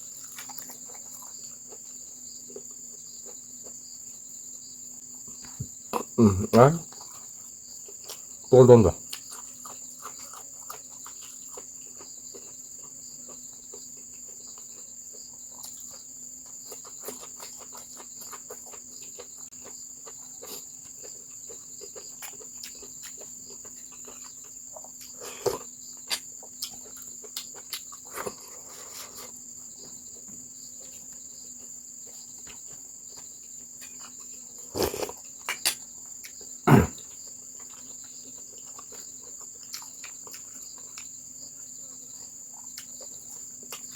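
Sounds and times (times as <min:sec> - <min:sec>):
crickets trilling: 0:00.0 - 0:43.9.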